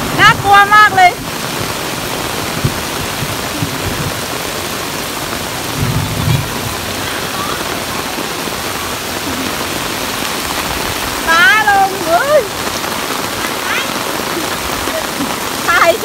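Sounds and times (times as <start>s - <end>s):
heavy rain on concrete: 0.0s - 16.0s
low rumble: 5.3s - 7.9s.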